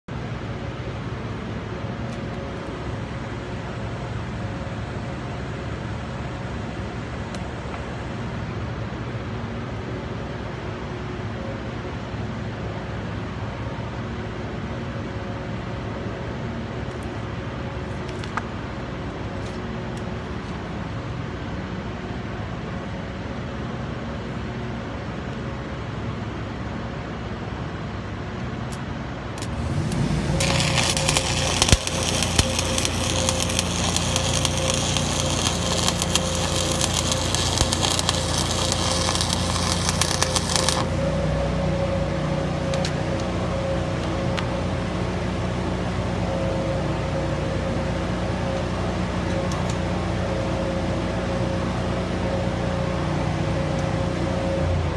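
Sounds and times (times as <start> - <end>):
welding arc crackling: 29.4 - 54.6
machine hum: 29.4 - 54.9.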